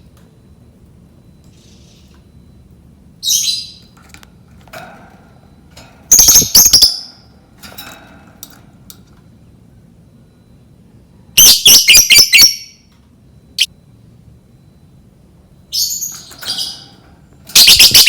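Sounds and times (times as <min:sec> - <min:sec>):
lovebird squawking and chirping: 0:11.4 - 0:12.7, 0:17.6 - 0:18.0.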